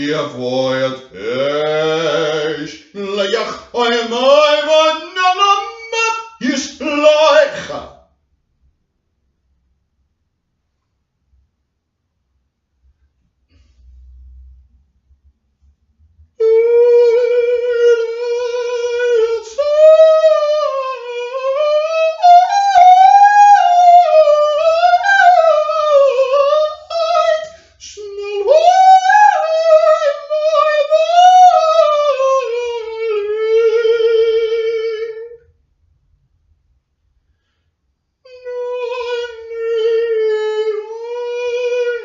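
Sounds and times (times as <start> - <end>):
high voice singing wordless melody: 0.0 - 8.0, 16.4 - 35.4, 38.3 - 42.0.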